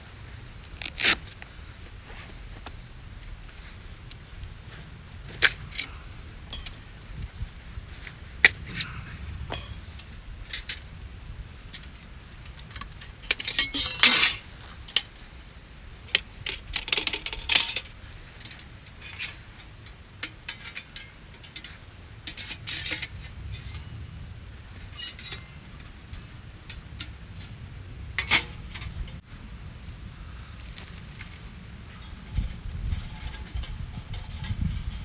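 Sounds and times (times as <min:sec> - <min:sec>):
metal gear clattering: 0:06.5 - 0:06.9, 0:09.5 - 0:09.9, 0:13.4 - 0:14.5
metal gear clinking and rattling: 0:06.5 - 0:06.9, 0:09.5 - 0:09.9, 0:13.3 - 0:14.6, 0:16.8 - 0:17.8
scraping rustle: 0:13.3 - 0:15.0, 0:29.4 - 0:35.0.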